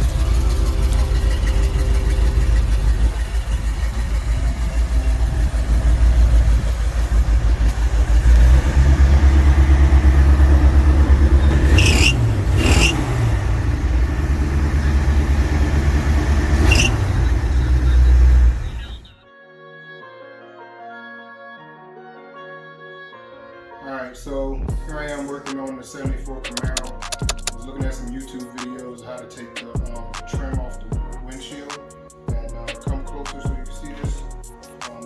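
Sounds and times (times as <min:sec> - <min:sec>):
car engine rumbling: 0:00.0 - 0:19.2, 0:26.1 - 0:28.4.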